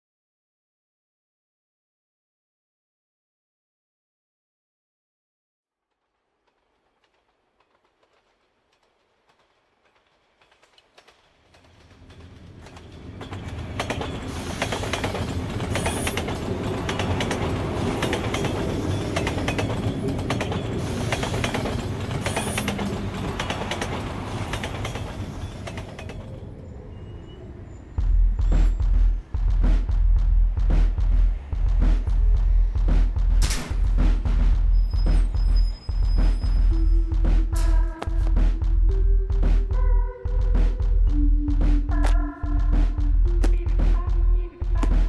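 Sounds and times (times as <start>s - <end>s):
train wheels clattering over rail joints: 6.5s - 26.4s
high wheel squeals: 25.0s - 28.8s, 34.6s - 37.0s.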